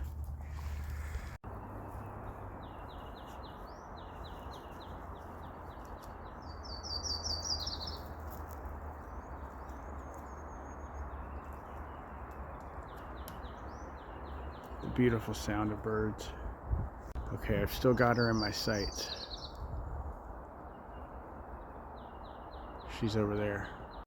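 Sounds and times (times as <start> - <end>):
songbirds chirping: 0.0 - 24.0
bird trill: 6.3 - 8.1.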